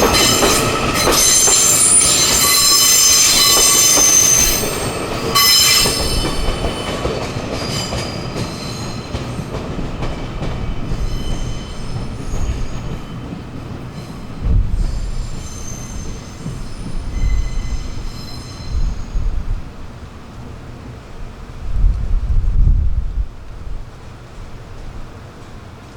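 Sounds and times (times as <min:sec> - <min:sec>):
train wheels squealing on rails: 0:00.0 - 0:19.9
low train rumble: 0:00.0 - 0:25.9.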